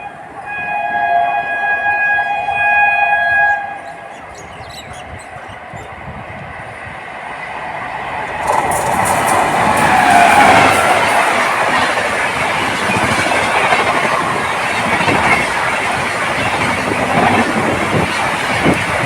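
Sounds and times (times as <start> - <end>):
locomotive air horn: 0.0 - 4.2
passing train rumble: 0.0 - 19.0
train wheel clicks: 8.0 - 19.0.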